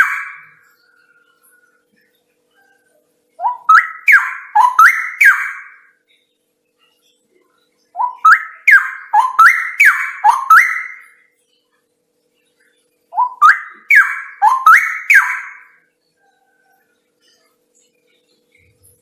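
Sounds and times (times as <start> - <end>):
bird singing rising whistles: 3.4 - 5.8, 8.0 - 11.2, 13.2 - 15.7.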